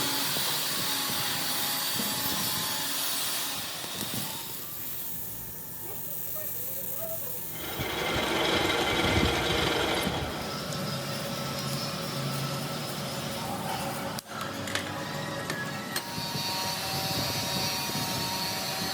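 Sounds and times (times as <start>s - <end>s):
machine hum and hiss: 0.0s - 13.4s.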